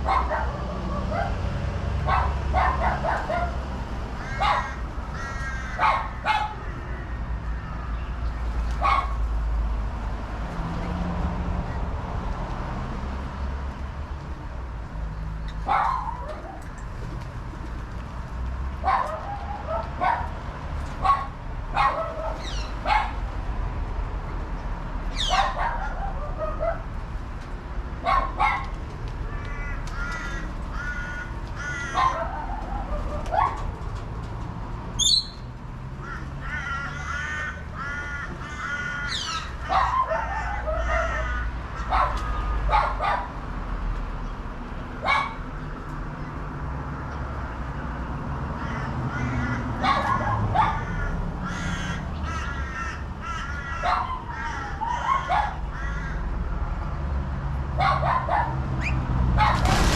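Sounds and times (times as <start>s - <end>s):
crows cawing: 4.2s - 8.0s, 29.3s - 32.6s, 36.0s - 42.4s, 48.6s - 56.5s.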